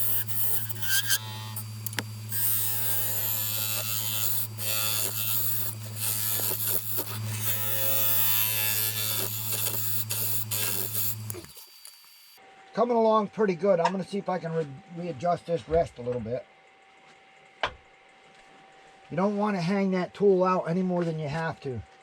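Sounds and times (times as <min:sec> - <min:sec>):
turning tool scraping wood: 0:00.0 - 0:12.4
wood lathe motor humming: 0:00.0 - 0:12.4.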